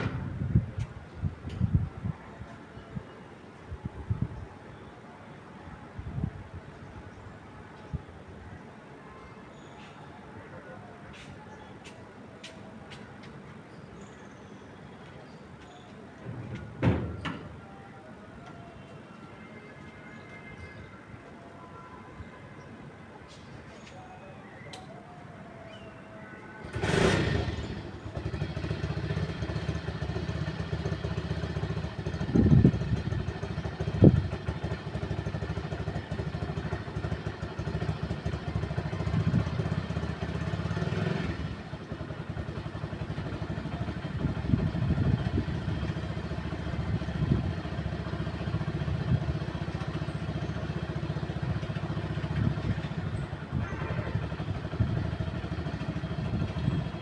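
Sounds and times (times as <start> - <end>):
wind buffeting microphone: 0.0 - 3.0, 32.0 - 34.6, 43.8 - 48.0.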